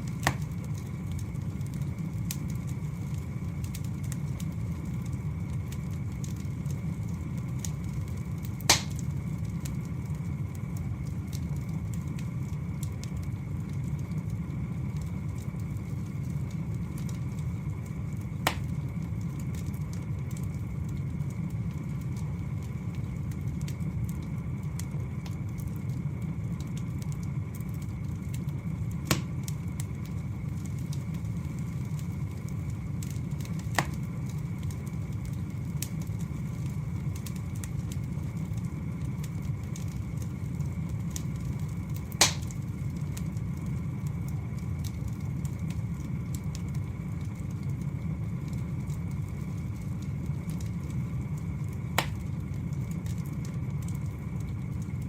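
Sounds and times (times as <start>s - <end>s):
wood fire crackling: 0.0s - 55.0s
logs popping: 0.1s - 0.9s, 8.6s - 9.0s, 18.4s - 18.8s, 29.0s - 29.6s, 33.5s - 34.1s, 42.1s - 42.6s, 52.0s - 52.4s.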